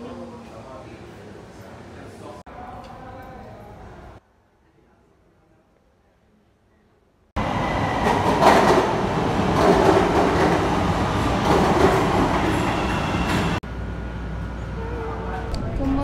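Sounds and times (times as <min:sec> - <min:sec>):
train rumbling and clattering: 0:07.4 - 0:13.6.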